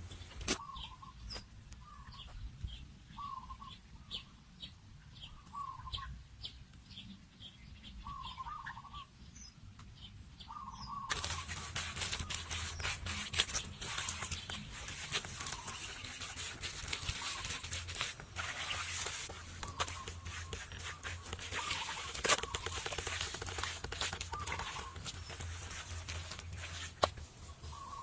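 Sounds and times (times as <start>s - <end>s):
bird wavering call: 8.0s - 9.1s, 27.7s - 28.0s
thin high bird chirps: 10.4s - 28.0s
dense crackling rustling noise: 11.1s - 28.0s.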